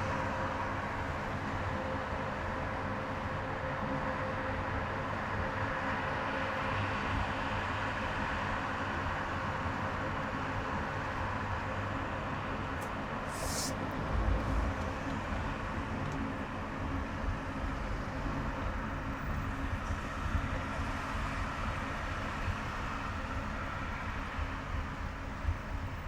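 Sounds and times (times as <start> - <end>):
car road noise: 11.4 - 19.4.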